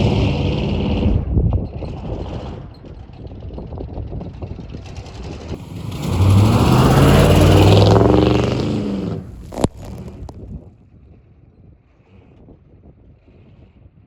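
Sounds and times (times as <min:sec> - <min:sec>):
pickup truck engine accelerating: 0:05.6 - 0:10.3.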